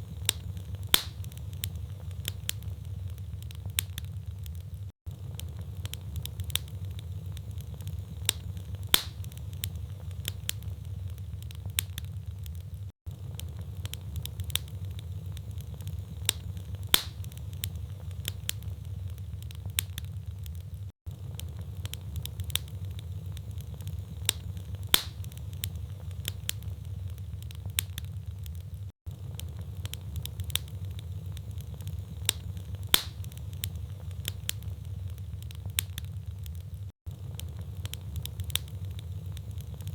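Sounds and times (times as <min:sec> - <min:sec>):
logs crackling in fireplace: 0:00.0 - 0:39.9.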